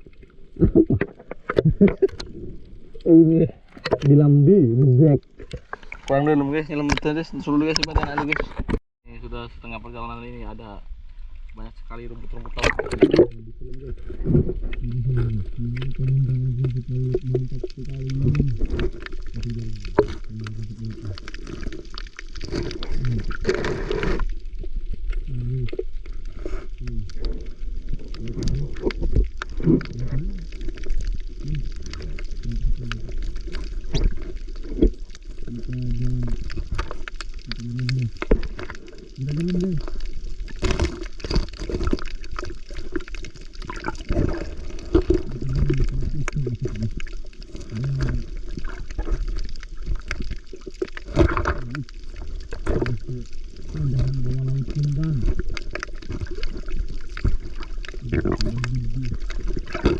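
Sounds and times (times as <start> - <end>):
underwater gurgling and bubbling: 0.0 - 8.8, 12.2 - 59.9
water splashes: 0.0 - 59.9
muffled low hums: 11.6 - 18.7
rushing bubbles burst: 11.9 - 59.9.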